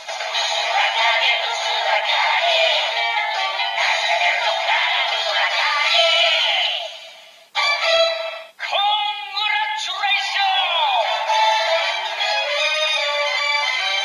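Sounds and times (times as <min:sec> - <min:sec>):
synthesized singing from toy speaker: 0:00.3 - 0:06.9.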